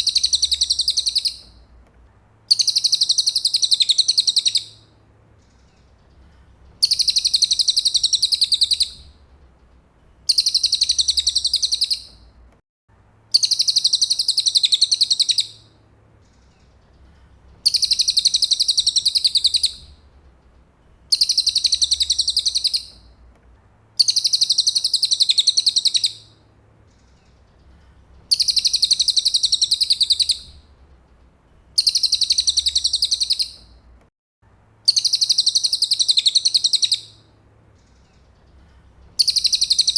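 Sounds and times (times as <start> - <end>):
songbird chattering trill: 0.0 - 1.5, 2.5 - 4.8, 6.8 - 9.0, 10.3 - 12.2, 13.4 - 15.6, 17.6 - 19.8, 21.1 - 23.0, 24.0 - 26.3, 28.3 - 30.6, 31.8 - 33.7, 34.9 - 37.2, 39.2 - 39.9.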